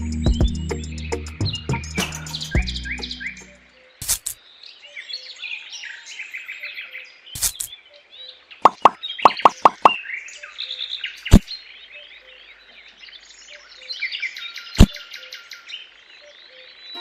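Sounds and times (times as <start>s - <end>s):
birds chirping: 0.0s - 17.0s
sharp clicks: 7.4s - 7.7s.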